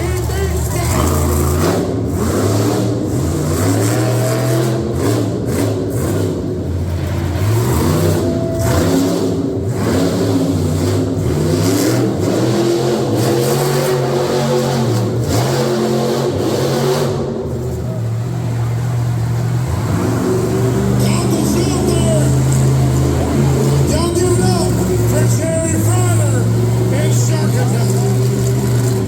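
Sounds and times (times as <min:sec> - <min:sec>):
engines revving: 0:00.0 - 0:29.0.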